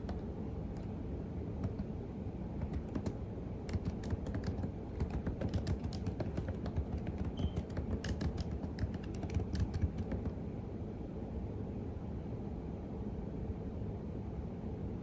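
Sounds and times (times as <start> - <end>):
computer keyboard typing: 0.0 - 0.9, 1.6 - 1.9, 2.6 - 10.4.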